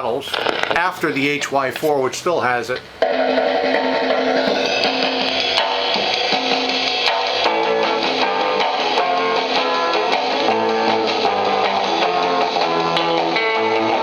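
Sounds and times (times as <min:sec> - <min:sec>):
song with guitar and drums: 0:03.0 - 0:14.0.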